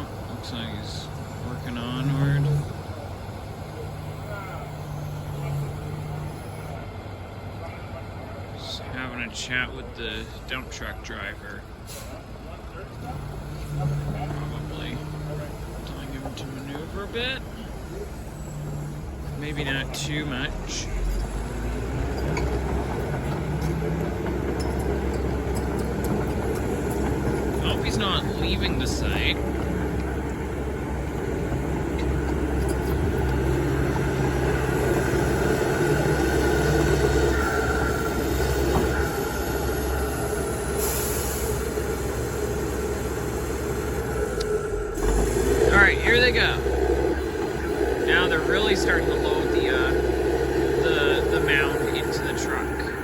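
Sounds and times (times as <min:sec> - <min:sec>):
heavy diesel engines running: 0:00.0 - 0:53.0.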